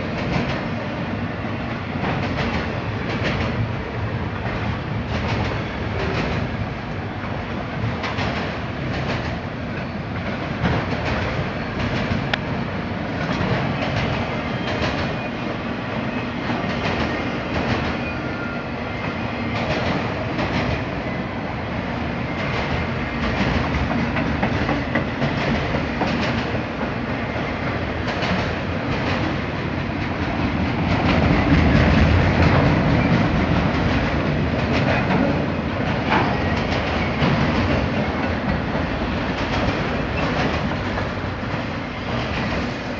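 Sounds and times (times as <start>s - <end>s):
freight train rumbling past: 0.0s - 42.9s
wheels clacking over rail joints: 22.4s - 42.7s.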